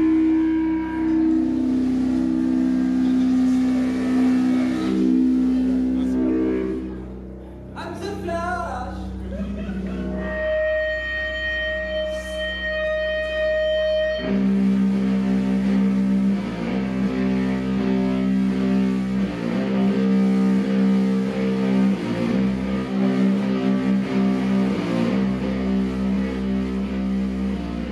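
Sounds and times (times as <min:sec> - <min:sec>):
slow droning rock with electric guitar: 0:00.0 - 0:07.8, 0:09.1 - 0:27.9.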